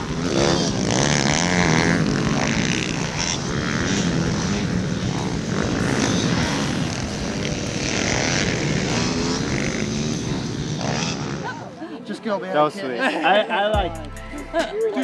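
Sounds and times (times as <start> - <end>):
small motorbike engines revving: 0.0 - 11.8.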